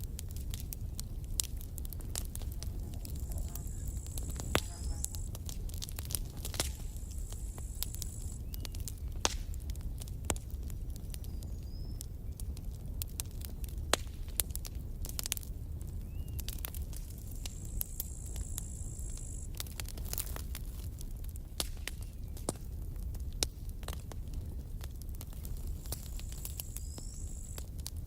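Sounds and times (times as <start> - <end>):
low steady rumble: 0.0 - 10.9
campfire wood crackling and popping: 0.0 - 28.0
faint high-pitched whine: 6.4 - 8.8.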